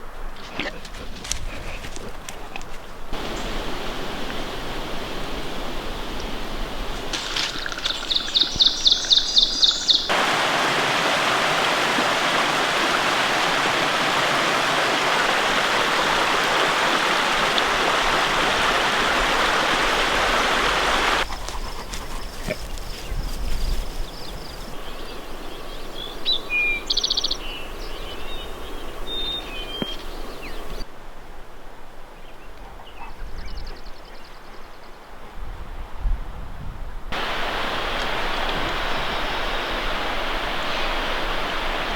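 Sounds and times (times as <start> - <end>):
rushing mountain stream: 0.0 - 21.2, 37.1 - 41.9.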